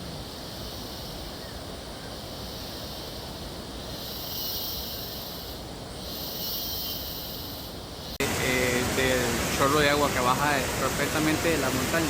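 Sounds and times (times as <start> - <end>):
outdoor background hiss: 0.0 - 12.0
high-pitched insect-like buzzing: 2.4 - 8.2.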